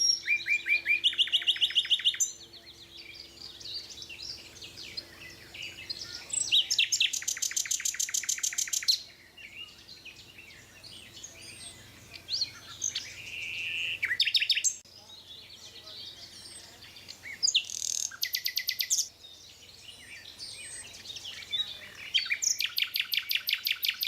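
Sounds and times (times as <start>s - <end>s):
fast bird trill: 0.0s - 10.2s, 11.0s - 14.8s, 16.0s - 19.1s, 20.3s - 24.0s
songbirds singing: 0.0s - 24.0s.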